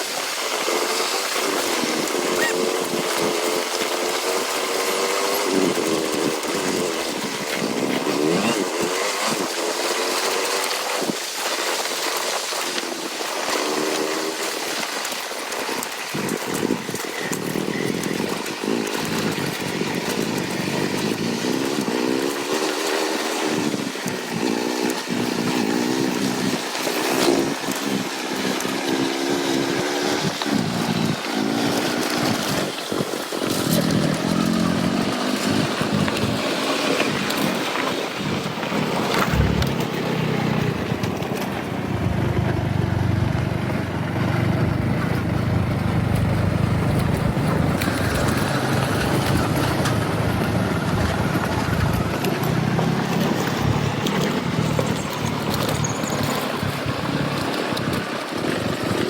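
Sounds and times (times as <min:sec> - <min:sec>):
motorcycle engine revving: 0:00.0 - 0:59.0
wind noise: 0:30.0 - 0:59.0.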